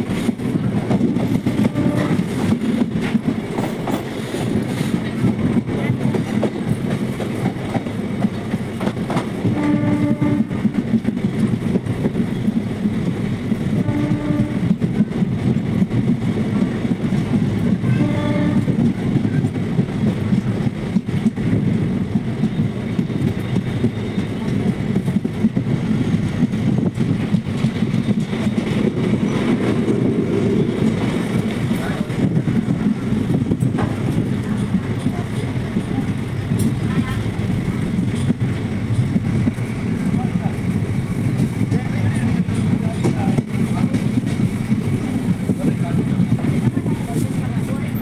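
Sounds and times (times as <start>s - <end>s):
train wheels rumbling: 0.0s - 48.0s
train horn blasts: 1.4s - 2.5s, 9.4s - 10.7s, 13.7s - 14.9s, 17.8s - 18.9s.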